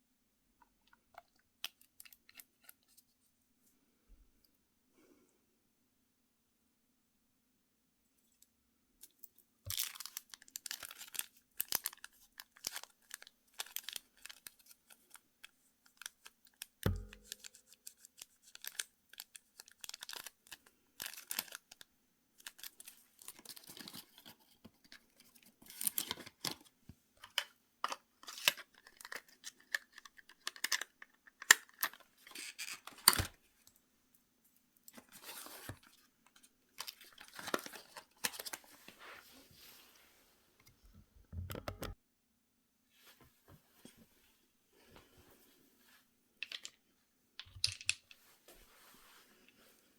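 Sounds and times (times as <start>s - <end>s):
packaging crinkling and tearing: 9.7s - 15.2s, 16.0s - 21.8s, 22.4s - 24.4s.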